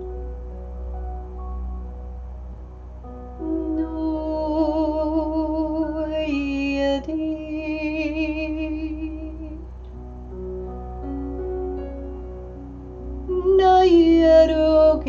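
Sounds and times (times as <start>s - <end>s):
soft background music: 0.0s - 15.0s
woman singing wordless notes: 3.4s - 9.7s, 13.2s - 15.0s.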